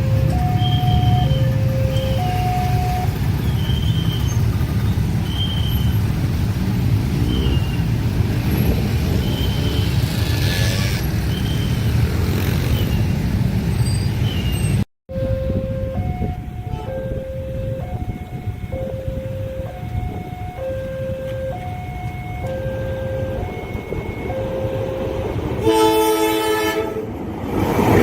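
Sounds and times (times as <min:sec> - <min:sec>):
two-tone crossing alarm: 0:00.0 - 0:04.2, 0:15.1 - 0:26.8
train wheels rumbling: 0:00.0 - 0:13.7, 0:16.0 - 0:28.0.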